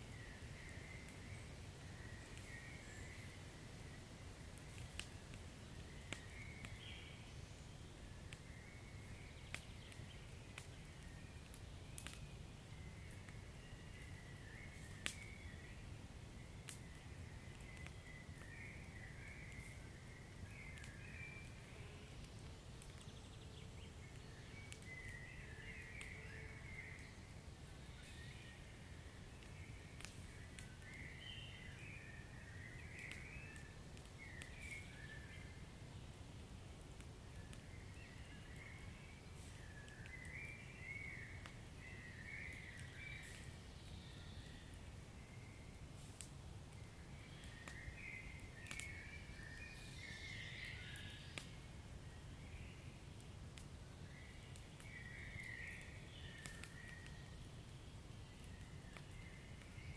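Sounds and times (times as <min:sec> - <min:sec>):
wood fire crackling: 0:00.0 - 0:59.9
low fire rumble: 0:00.1 - 0:26.1.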